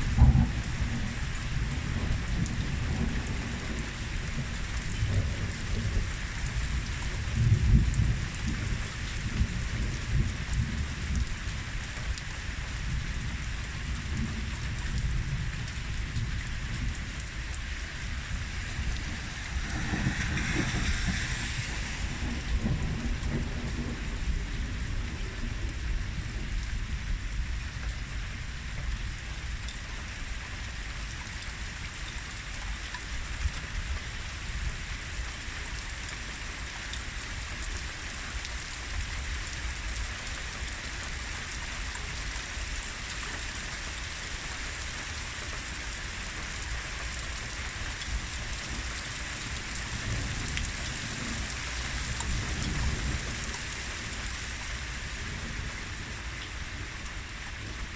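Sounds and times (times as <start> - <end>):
heavy rain falling: 0.0 - 57.9
low rumble: 16.8 - 25.1.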